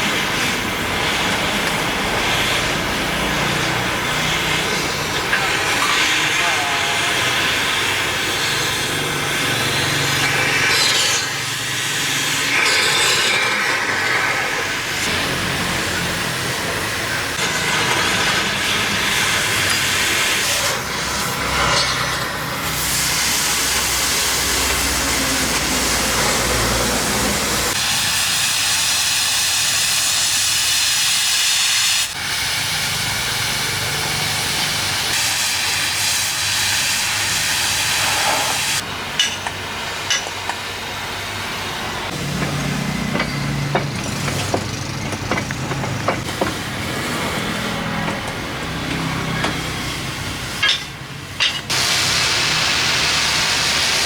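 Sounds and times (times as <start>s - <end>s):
loud hissing of rushing air: 0.0s - 38.9s, 51.7s - 54.0s.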